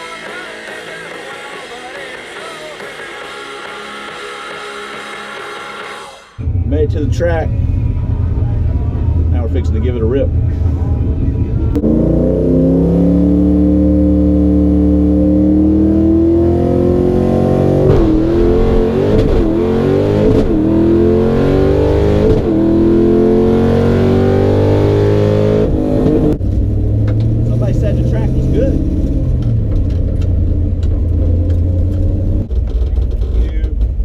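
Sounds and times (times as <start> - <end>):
car engine revving hard: 11.8 - 29.7.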